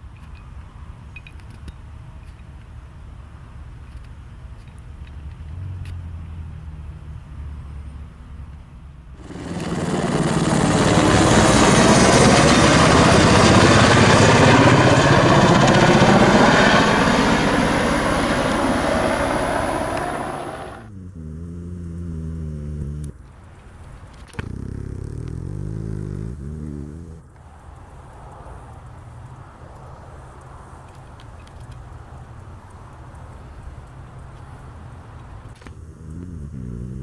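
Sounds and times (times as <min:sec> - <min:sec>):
helicopter engine drone: 0:09.2 - 0:20.9
helicopter rotor and turbine noise: 0:09.2 - 0:20.9
high turbine whine: 0:09.2 - 0:20.9.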